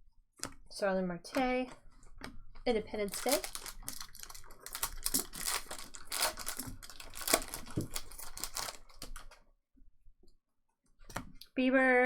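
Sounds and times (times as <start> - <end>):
cards rustling: 3.0 - 9.4
foil wrappers crinkling and tearing: 3.0 - 9.4.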